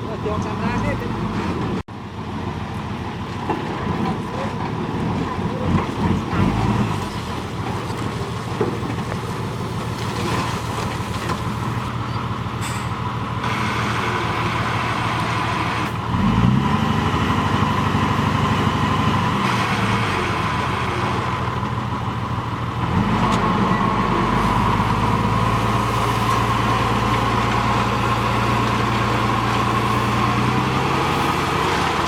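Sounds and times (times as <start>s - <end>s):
heavy diesel engine revving: 3.7s - 7.8s, 12.3s - 32.0s.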